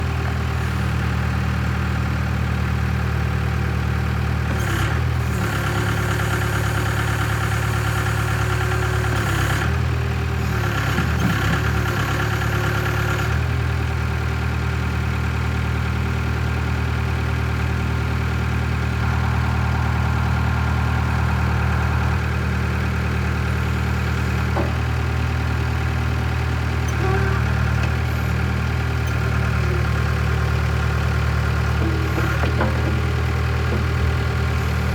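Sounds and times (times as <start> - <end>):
diesel engine idling: 0.0 - 34.9
high-pitched whine: 18.7 - 24.6.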